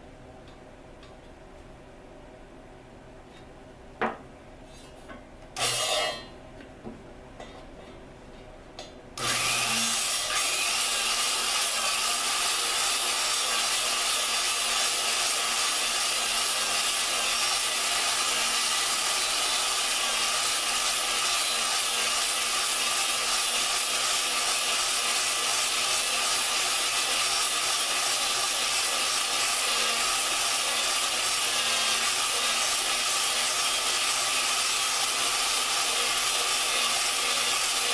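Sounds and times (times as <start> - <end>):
drill grinding valve: 9.2 - 37.9.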